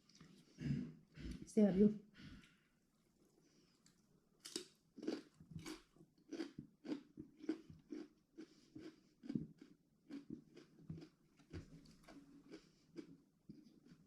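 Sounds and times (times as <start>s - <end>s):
person chewing food: 3.4s - 14.0s.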